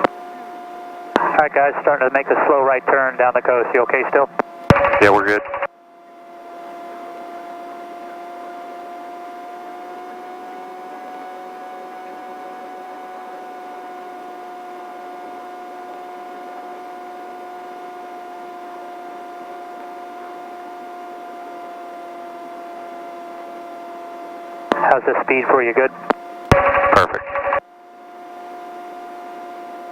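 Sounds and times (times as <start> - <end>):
helicopter whine through intercom: 1.2 - 5.7, 6.8 - 9.0, 24.7 - 27.6.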